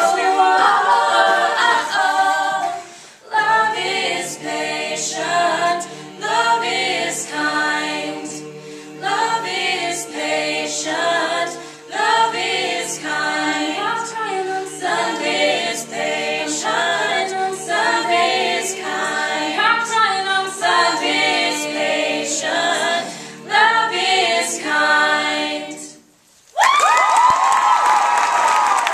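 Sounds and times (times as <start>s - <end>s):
a cappella group singing: 0.0s - 26.2s
crowd cheering: 26.6s - 28.9s.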